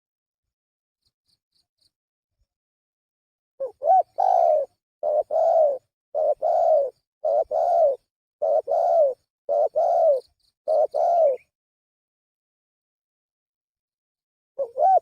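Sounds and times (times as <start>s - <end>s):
dove cooing: 3.6s - 11.5s, 14.6s - 15.0s.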